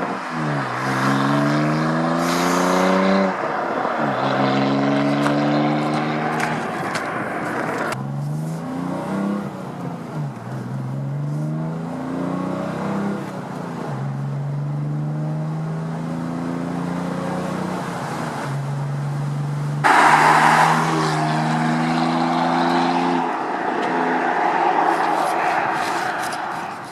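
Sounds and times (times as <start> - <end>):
car exhaust revving: 0.0 - 13.2, 19.8 - 26.9.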